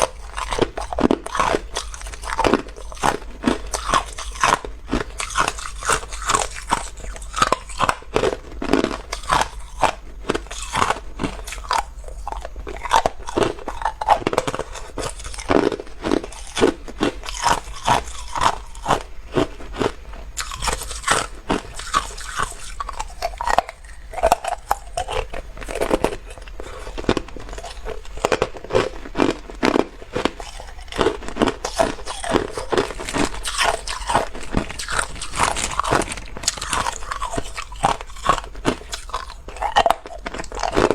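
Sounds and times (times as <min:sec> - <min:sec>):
ice cubes crunching in teeth: 0:00.0 - 0:40.9.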